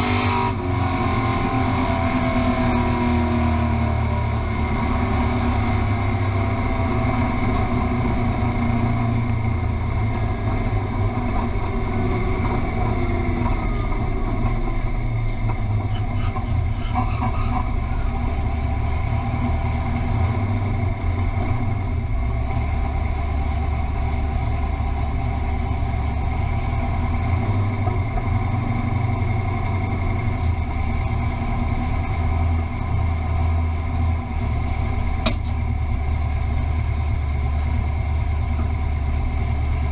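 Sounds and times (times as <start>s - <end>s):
car engine rumbling at low revs: 0.0s - 39.9s.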